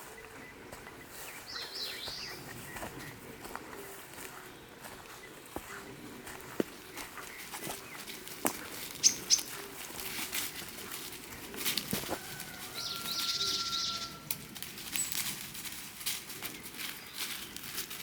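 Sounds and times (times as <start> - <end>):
birds chirping: 0.0 - 15.4, 16.3 - 17.9
footsteps on forest path: 0.0 - 18.0
buzzy bird call: 9.0 - 9.5, 12.8 - 14.2.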